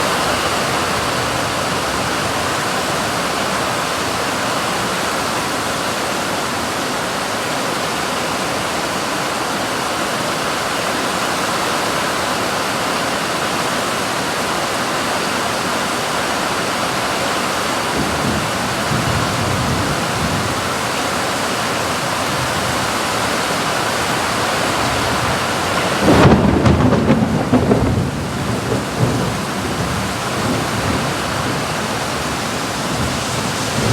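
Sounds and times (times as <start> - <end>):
heavy rain falling: 0.0 - 33.9
thunder rumbling: 24.2 - 33.9.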